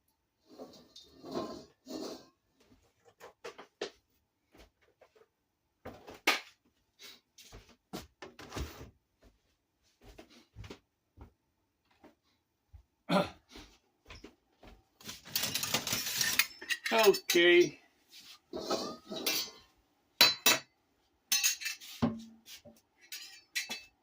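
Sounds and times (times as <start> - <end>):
kitchen utensils knocking and clicking: 15.3 - 17.5, 18.6 - 19.6, 20.2 - 20.7, 21.3 - 22.3, 23.0 - 24.0.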